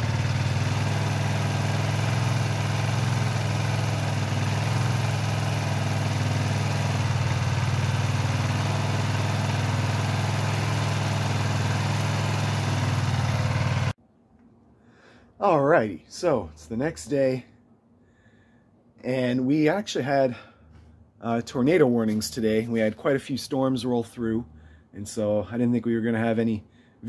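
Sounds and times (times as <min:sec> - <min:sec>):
small tractor engine running: 0:00.0 - 0:14.0.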